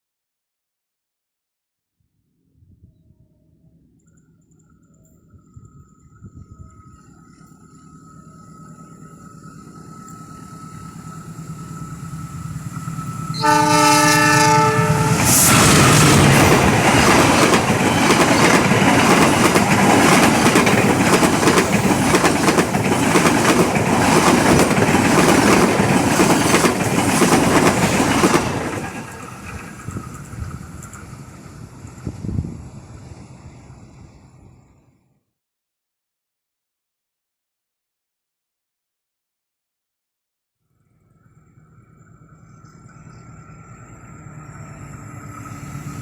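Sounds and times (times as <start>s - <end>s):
train rolling past: 4.0s - 34.9s, 41.0s - 46.0s
train horn: 13.3s - 16.7s.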